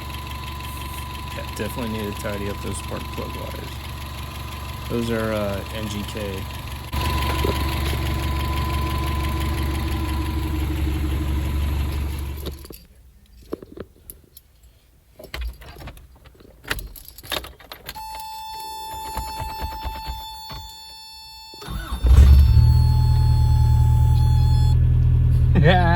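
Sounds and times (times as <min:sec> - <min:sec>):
engine running: 0:00.0 - 0:12.7, 0:21.6 - 0:25.9
light clicks and rattles: 0:12.4 - 0:18.2.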